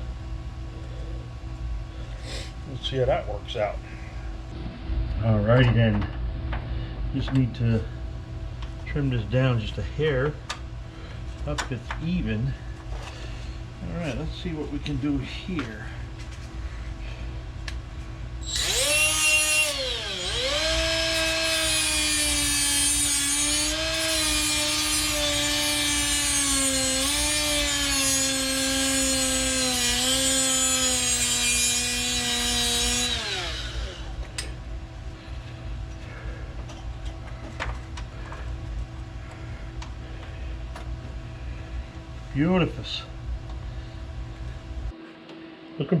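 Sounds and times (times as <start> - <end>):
power cutting tool whining: 18.4 - 34.5.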